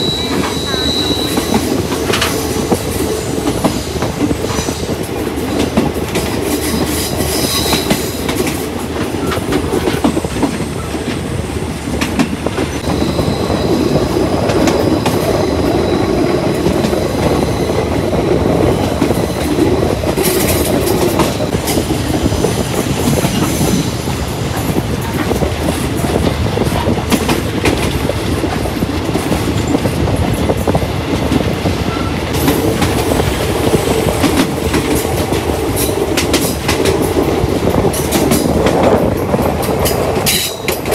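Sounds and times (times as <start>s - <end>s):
high wheel squeal: 0.0s - 1.8s, 12.8s - 18.1s
train rumble: 0.0s - 40.9s
train wheels clattering over rails: 0.0s - 40.9s.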